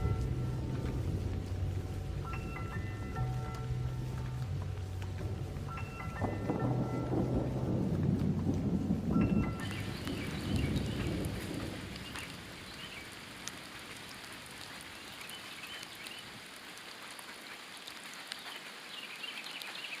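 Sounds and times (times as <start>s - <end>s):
low thunder rumble: 0.0s - 14.9s
steady rain falling: 0.0s - 20.0s.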